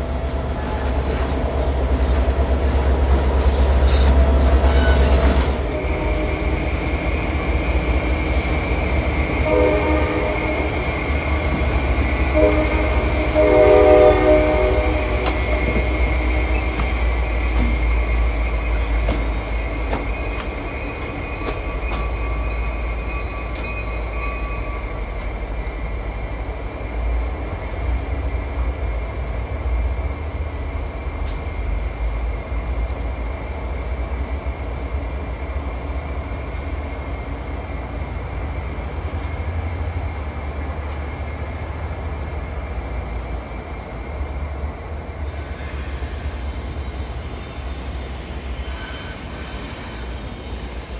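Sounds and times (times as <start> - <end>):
diesel locomotive rumbling: 0.0 - 50.9
locomotive horn blasts: 4.7 - 6.9, 9.2 - 17.0.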